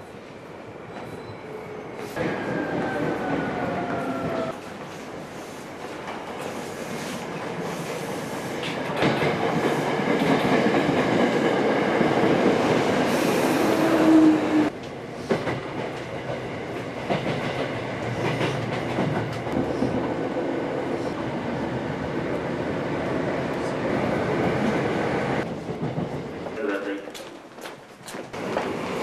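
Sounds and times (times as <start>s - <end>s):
electric train pulling in: 0.2s - 25.6s
train brake squeal: 0.9s - 2.2s.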